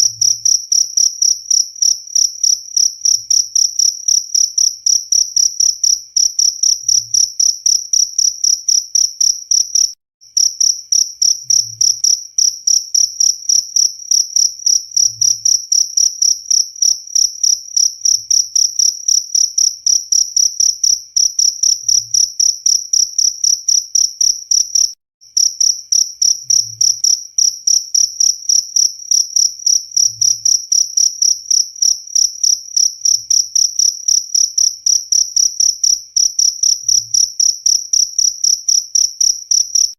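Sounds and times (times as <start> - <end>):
cricket chirping trill: 0.0 - 39.9.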